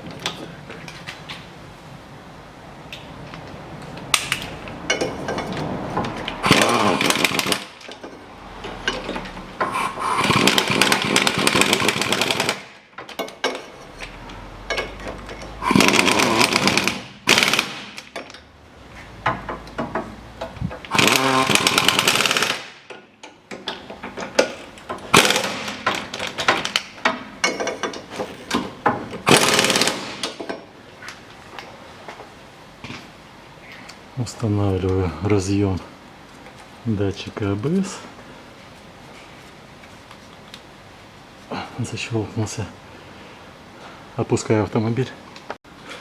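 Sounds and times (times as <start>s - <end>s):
impact wrench hammering bolts: 6.1s - 18.4s, 19.2s - 30.6s.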